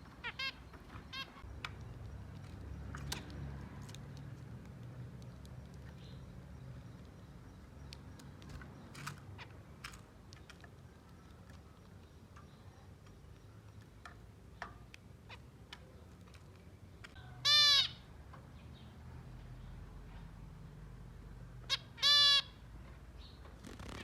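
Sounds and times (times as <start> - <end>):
finches chirping: 0.1 - 18.0
loud finch call: 21.7 - 22.6.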